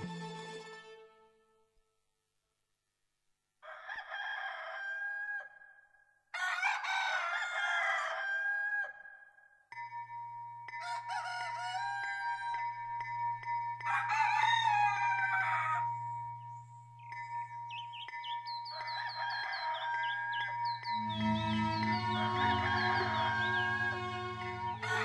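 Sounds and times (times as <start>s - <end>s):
roosters crowing: 3.6s - 5.5s, 6.4s - 9.1s, 10.8s - 12.7s, 13.8s - 25.0s
held tone: 20.8s - 24.8s.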